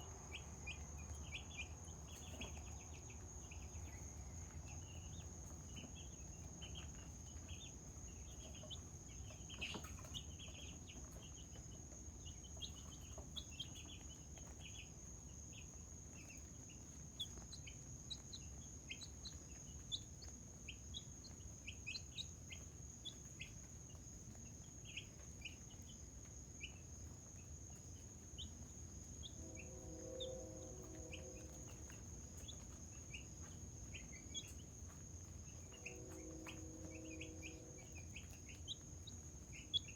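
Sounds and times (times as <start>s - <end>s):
chickens chirping: 0.1s - 15.0s, 30.8s - 39.9s.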